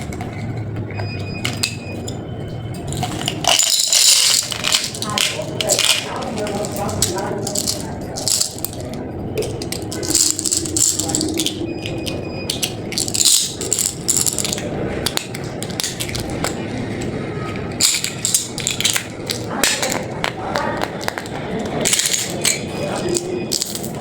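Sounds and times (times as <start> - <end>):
plastic packaging crinkling: 3.0 - 17.0.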